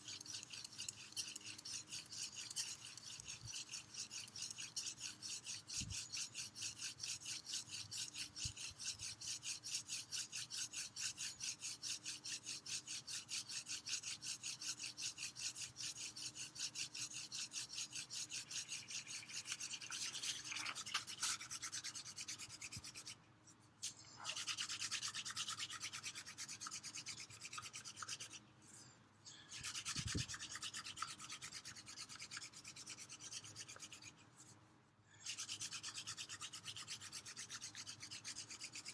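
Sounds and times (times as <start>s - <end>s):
hand drill spindle rasping on wood: 0.0s - 20.4s.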